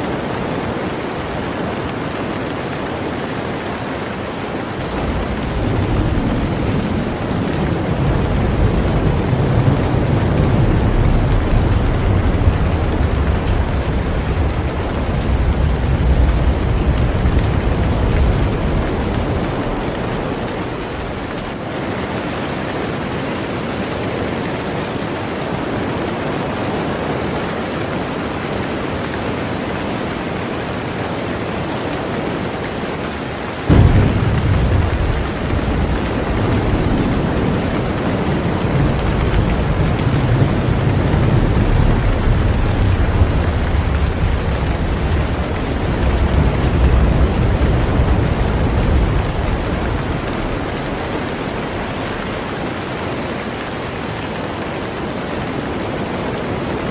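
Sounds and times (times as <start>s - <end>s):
heavy rain on a boat: 0.0s - 56.9s
low thunder rumbling: 4.5s - 21.6s, 33.6s - 56.8s
thunderclap: 4.7s - 21.7s, 33.6s - 54.0s.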